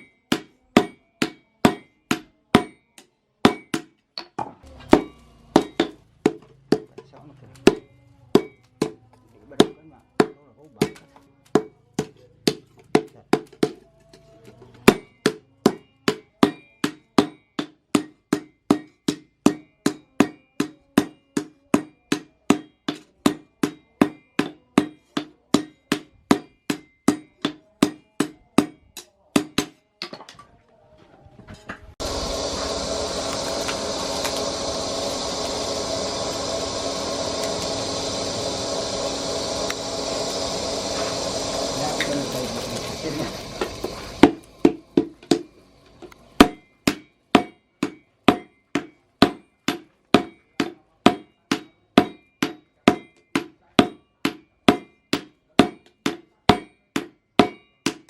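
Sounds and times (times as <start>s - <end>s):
hammer striking steel: 0.0s - 14.0s, 14.8s - 30.4s, 32.0s - 58.0s
machine whirring: 32.0s - 46.5s.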